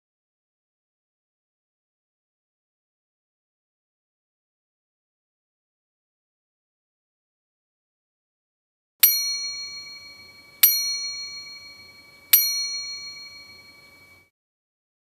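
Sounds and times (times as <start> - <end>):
bell-like chime ringing: 9.0 - 14.3.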